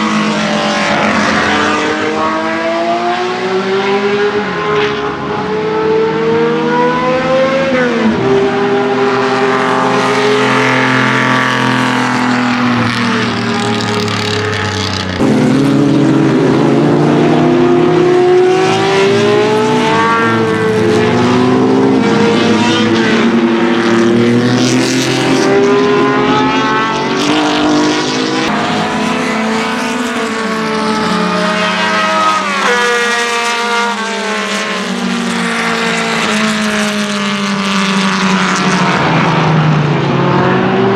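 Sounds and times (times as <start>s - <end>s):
racing engines revving: 0.0s - 40.9s.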